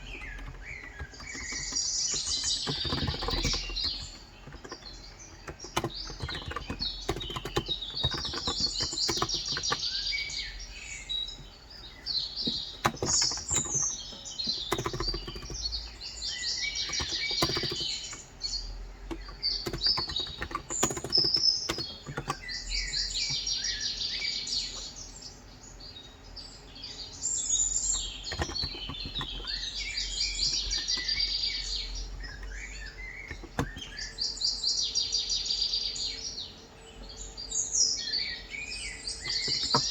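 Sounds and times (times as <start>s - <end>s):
keyboard typing clicks: 0.0s - 23.6s, 27.9s - 34.2s, 39.1s - 39.9s
birds singing trills: 0.0s - 39.9s.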